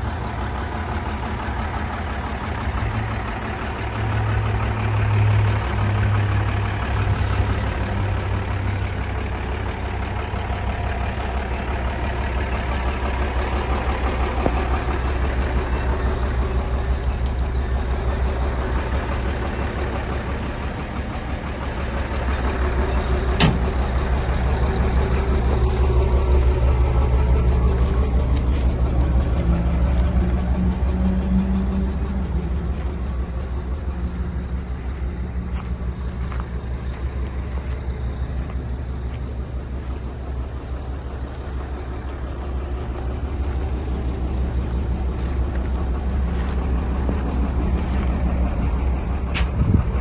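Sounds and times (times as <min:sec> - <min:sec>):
diesel truck engine running: 0:00.0 - 0:50.0.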